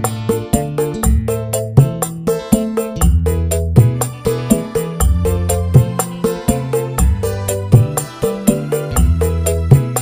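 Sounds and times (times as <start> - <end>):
loud music with heavy bass: 0.0 - 10.0
steady beat: 0.0 - 10.0.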